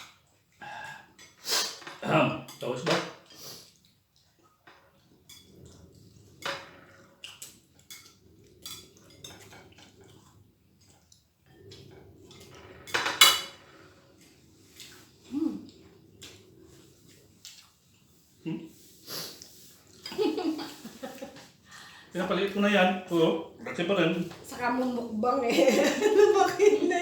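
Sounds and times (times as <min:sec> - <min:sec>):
cutlery clatter: 0:01.7 - 0:03.3, 0:12.4 - 0:13.8
cutlery clinking on plates: 0:12.8 - 0:13.7.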